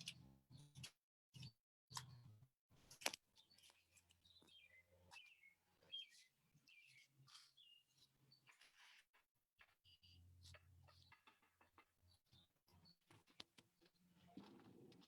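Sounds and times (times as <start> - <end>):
bird chirps: 3.4 - 8.9.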